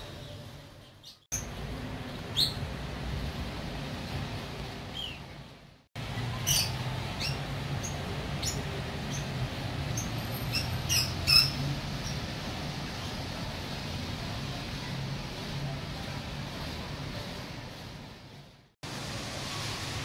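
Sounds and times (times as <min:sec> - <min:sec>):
high bird chirps: 0:09.9 - 0:12.2.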